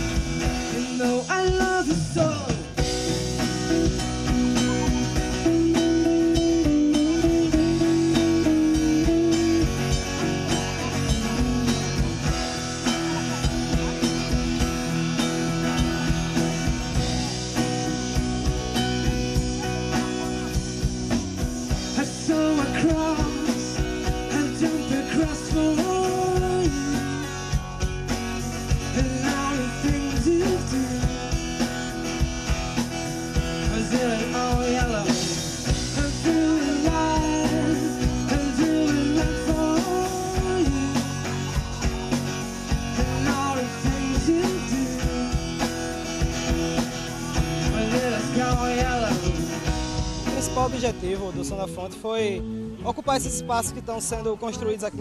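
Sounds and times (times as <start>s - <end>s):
person singing: 0.0s - 14.4s, 21.7s - 27.6s, 28.6s - 31.6s, 33.5s - 45.9s, 46.8s - 50.4s
drum kit beat: 0.0s - 54.3s
guitar: 0.0s - 55.0s.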